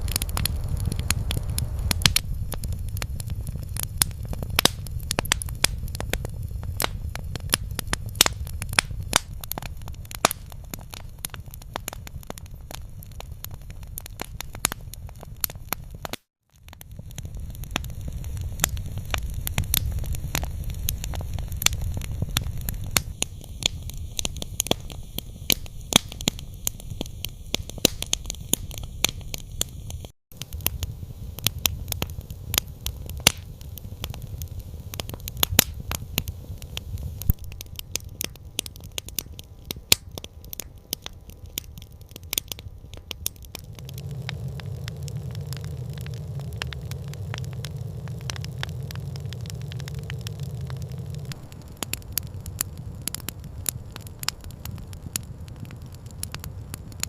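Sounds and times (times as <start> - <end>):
low steady rumble: 0.0 - 16.0, 41.2 - 57.0
campfire crackling and popping: 0.0 - 57.0.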